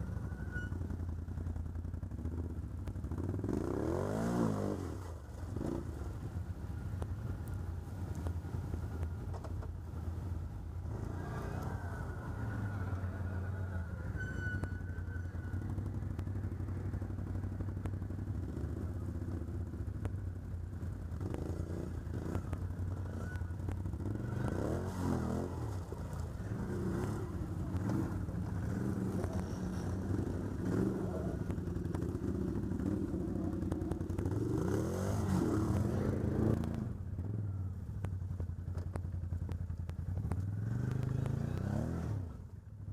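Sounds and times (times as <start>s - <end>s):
atv engine revving: 0.0s - 9.3s, 10.1s - 38.0s, 39.7s - 42.9s.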